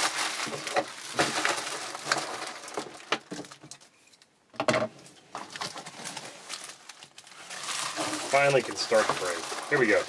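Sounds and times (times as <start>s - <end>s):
card pack packaging rustling: 0.0s - 3.9s, 5.4s - 10.0s.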